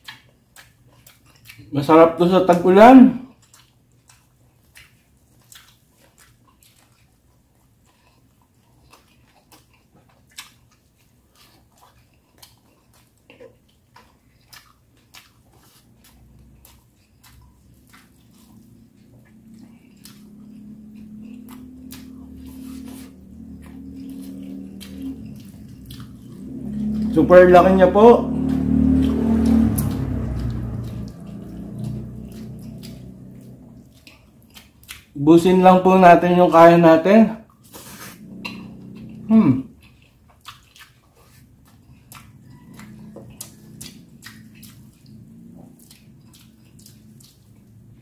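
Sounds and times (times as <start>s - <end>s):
chewing and wet mouth clicks: 0.0s - 48.0s
low hum: 17.4s - 34.7s, 38.2s - 39.7s.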